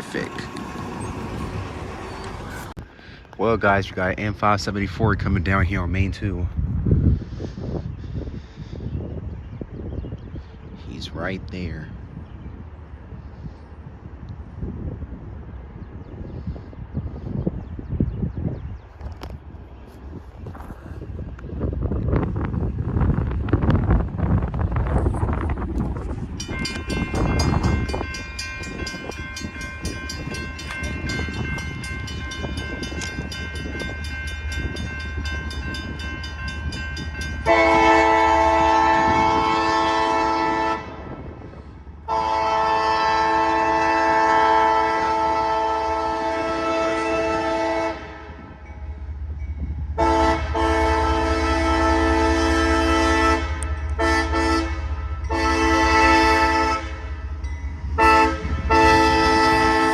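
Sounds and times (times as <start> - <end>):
locomotive low rumble: 0.0 - 3.4, 11.9 - 59.9
locomotive air horn: 37.4 - 41.2, 42.1 - 48.4, 50.0 - 57.2, 57.9 - 59.9.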